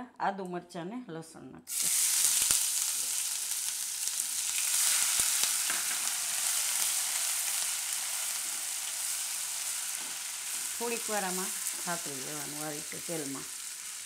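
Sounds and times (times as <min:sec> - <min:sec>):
food sizzling in hot oil: 0:01.7 - 0:14.0.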